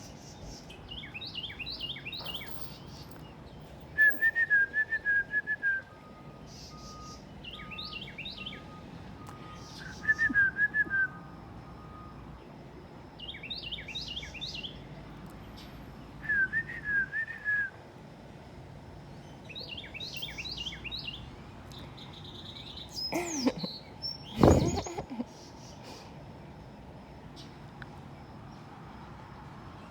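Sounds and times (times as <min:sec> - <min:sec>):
bird chirping: 0:00.0 - 0:04.4, 0:06.4 - 0:08.8, 0:09.4 - 0:10.6, 0:13.2 - 0:14.8, 0:19.1 - 0:25.8.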